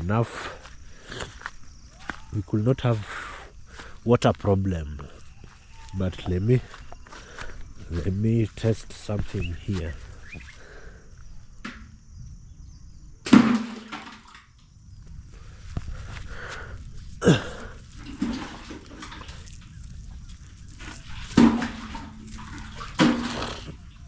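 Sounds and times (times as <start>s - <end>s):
splashes and knocks in well water: 13.2s - 14.7s, 17.3s - 24.0s.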